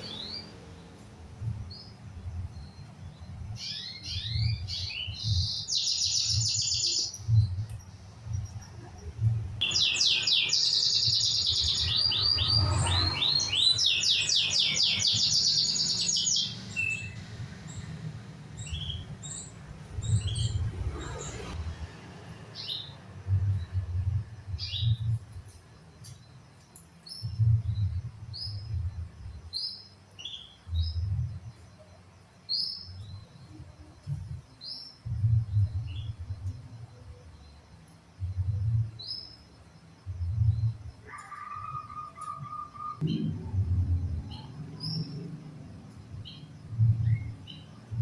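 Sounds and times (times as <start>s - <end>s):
canary singing: 9.6s - 18.0s, 41.1s - 43.2s
uneven low rumble: 43.0s - 48.0s.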